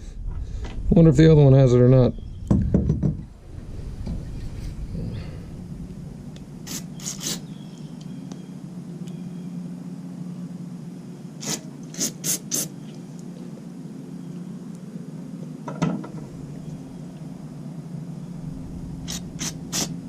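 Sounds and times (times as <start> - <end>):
steady low hum: 0.0 - 20.0
compressed air hissing blasts: 6.4 - 7.6, 11.4 - 12.8, 18.9 - 20.0.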